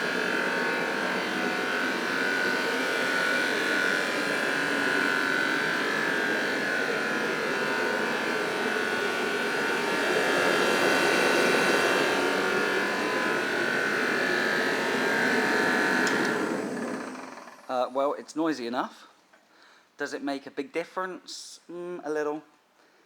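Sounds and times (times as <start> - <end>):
space heater fan and burner rush: 0.0 - 18.0.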